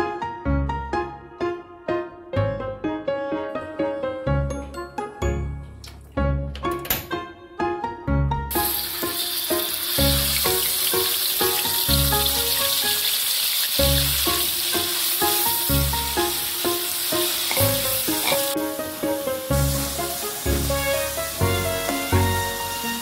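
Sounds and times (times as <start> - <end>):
spice paste sizzling in oil: 8.5 - 23.0
spatula stirring in wok: 16.6 - 18.6.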